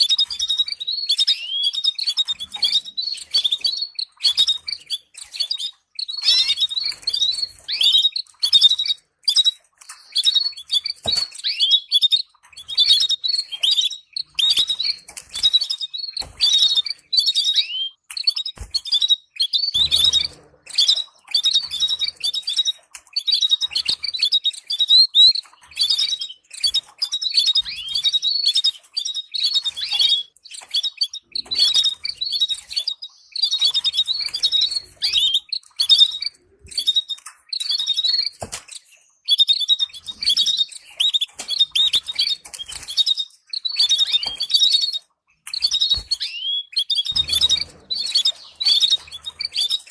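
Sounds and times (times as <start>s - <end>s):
canary singing: 0.0s - 49.9s.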